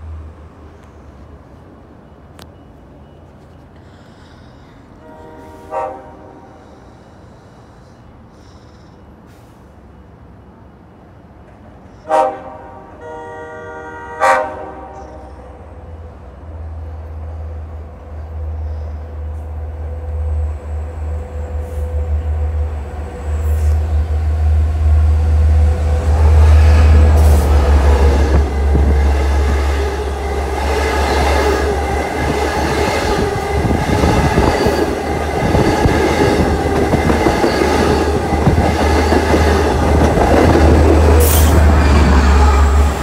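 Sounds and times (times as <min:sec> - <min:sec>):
train horn: 0:05.0 - 0:06.9, 0:12.0 - 0:15.5, 0:19.4 - 0:24.1, 0:25.1 - 0:31.9, 0:40.8 - 0:43.0.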